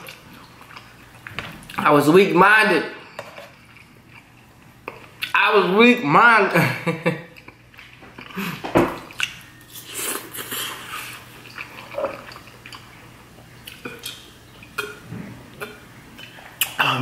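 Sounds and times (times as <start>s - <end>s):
chewing noodles: 9.1s - 15.0s.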